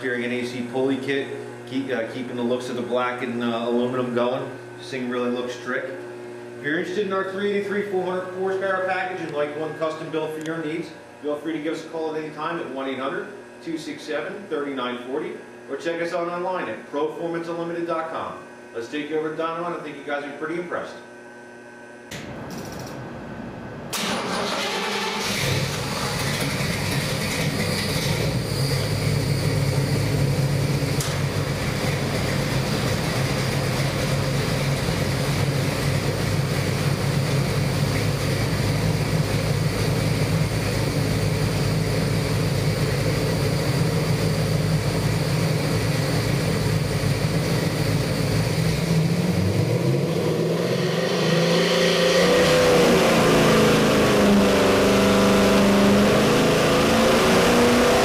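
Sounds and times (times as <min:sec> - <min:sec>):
engine idling and revving: 0:23.9 - 0:58.0.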